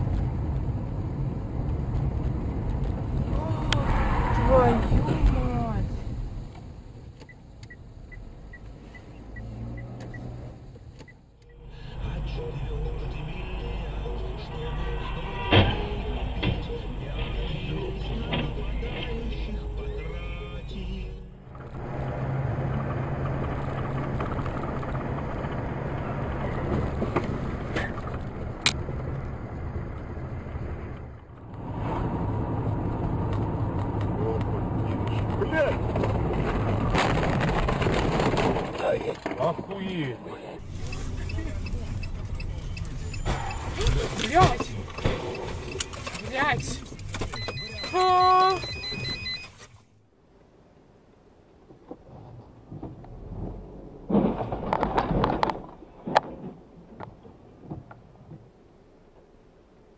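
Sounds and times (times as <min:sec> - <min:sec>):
car engine and road noise: 0:00.0 - 0:59.9
low vehicle rumble: 0:00.0 - 0:59.9.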